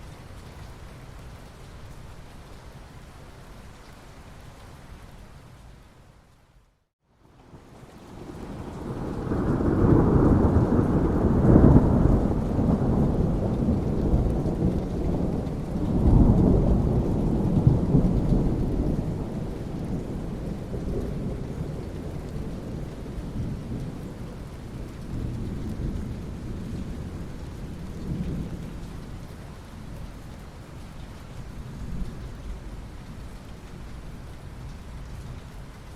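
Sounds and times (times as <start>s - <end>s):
steady rain: 0.0s - 35.9s
thunder rolling: 8.2s - 24.0s.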